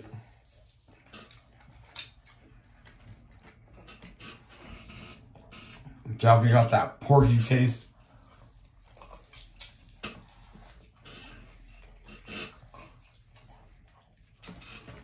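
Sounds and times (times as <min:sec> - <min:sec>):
chewing and lip-smacking: 0:00.0 - 0:06.1, 0:07.8 - 0:15.0.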